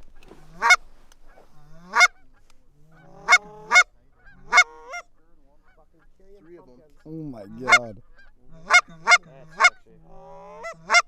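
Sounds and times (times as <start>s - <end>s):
goose honking: 0.4s - 6.7s, 7.5s - 11.0s.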